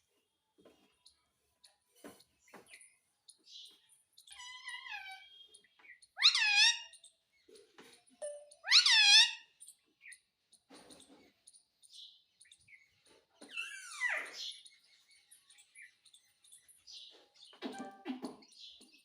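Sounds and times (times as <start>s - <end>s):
parrot soft chirps and clicks: 7.8s - 10.2s.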